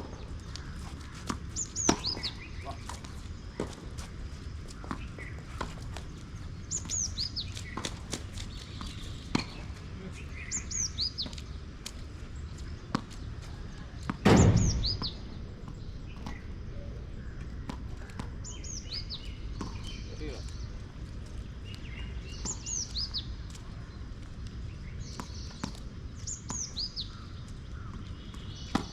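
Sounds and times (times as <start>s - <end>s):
loud thump with a rush: 14.2s - 15.3s
sharp knocks: 14.2s - 16.4s.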